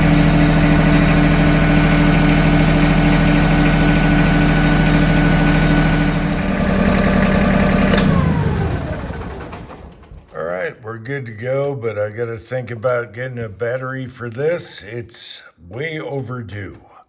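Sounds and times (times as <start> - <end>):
diesel engine idling: 0.0 - 10.6
click: 7.9 - 8.4.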